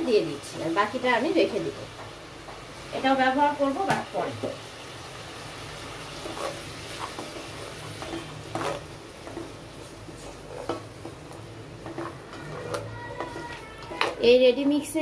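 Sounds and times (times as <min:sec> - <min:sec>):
meat sizzling in a pot: 0:00.0 - 0:15.0
spatula scraping and knocking pot: 0:06.2 - 0:09.6, 0:10.2 - 0:14.3.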